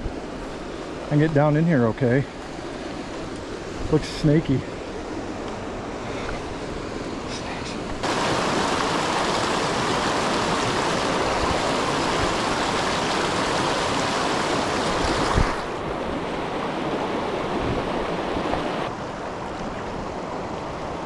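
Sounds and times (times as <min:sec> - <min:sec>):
creek rushing over rocks: 0:06.3 - 0:21.0.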